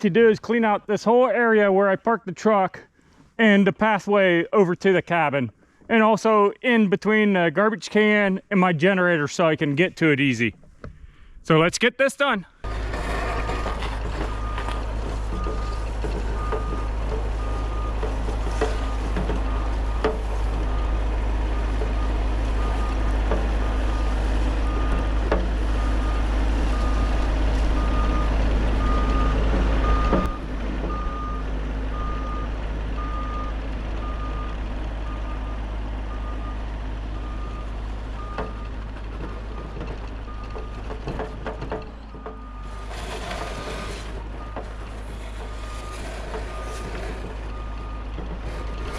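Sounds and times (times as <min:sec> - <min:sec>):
excavator engine running: 0:12.6 - 0:48.9
travel alarm beeping: 0:27.8 - 0:34.5.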